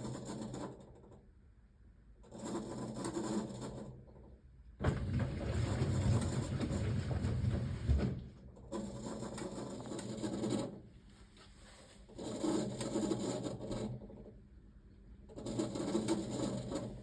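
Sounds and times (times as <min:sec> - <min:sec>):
washing machine motor turning drum: 0:04.8 - 0:10.7.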